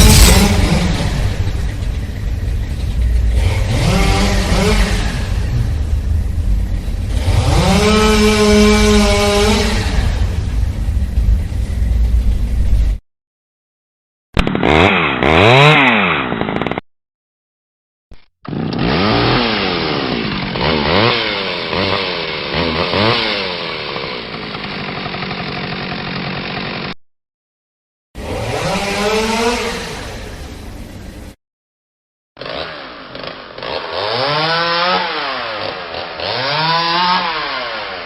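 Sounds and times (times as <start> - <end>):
chainsaw engine revving: 0.0 - 2.2, 3.1 - 10.7, 14.4 - 16.8, 18.4 - 27.0, 28.2 - 30.7, 32.4 - 38.0.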